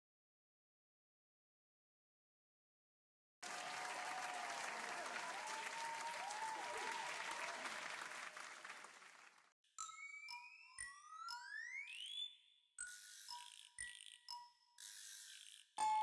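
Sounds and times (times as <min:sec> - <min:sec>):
crowd applause: 0:03.4 - 0:09.5.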